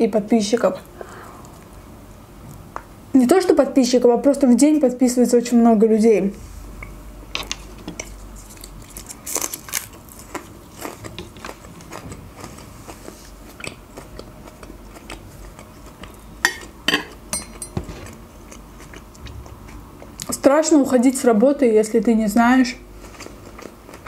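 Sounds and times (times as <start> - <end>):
person chewing food: 7.4 - 20.3, 23.0 - 24.0
crunchy bites: 8.5 - 12.0.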